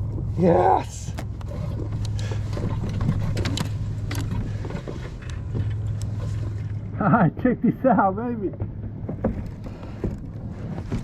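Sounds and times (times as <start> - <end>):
fishing gear clicking and knocking: 1.1 - 6.9, 8.5 - 11.0
wind rumble on microphone: 8.4 - 11.0.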